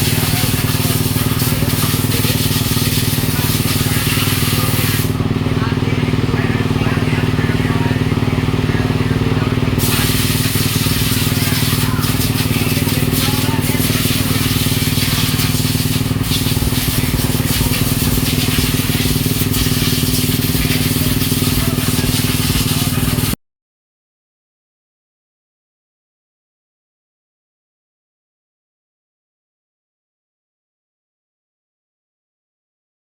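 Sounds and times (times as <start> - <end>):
motorcycle engines droning: 0.0 - 23.4.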